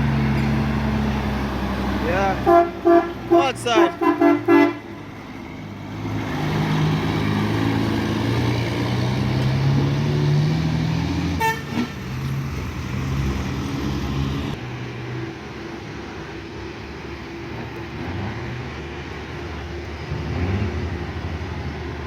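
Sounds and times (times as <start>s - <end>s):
heavy truck diesel engine: 0.0s - 22.0s
truck horn toot: 2.2s - 5.0s, 11.4s - 12.1s.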